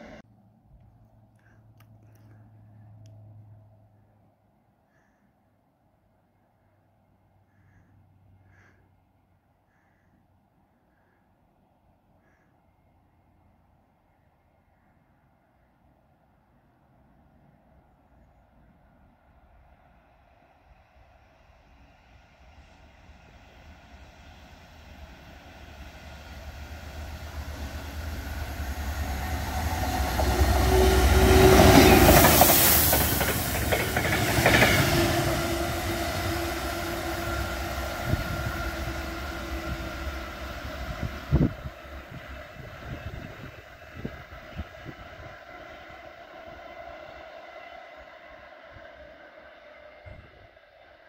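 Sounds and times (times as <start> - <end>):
diesel locomotive rumble: 0.0 - 0.3, 22.0 - 51.0.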